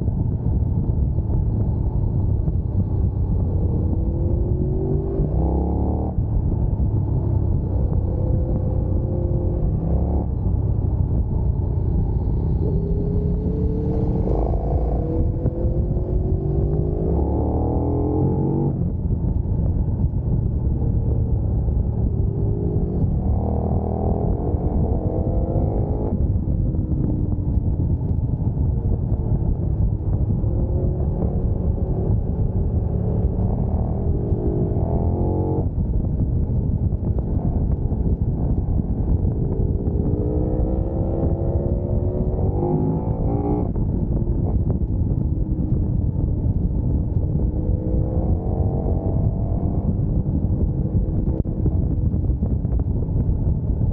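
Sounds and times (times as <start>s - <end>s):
motorcycle engine revving: 11.8s - 18.9s, 20.8s - 28.1s, 29.0s - 44.8s, 46.0s - 52.2s.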